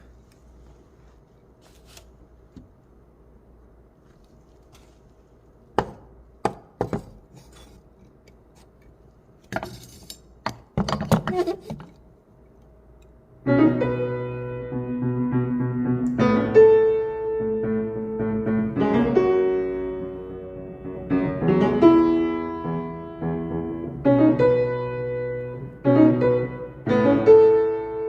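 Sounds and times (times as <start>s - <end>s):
piano chords: 13.4s - 28.0s.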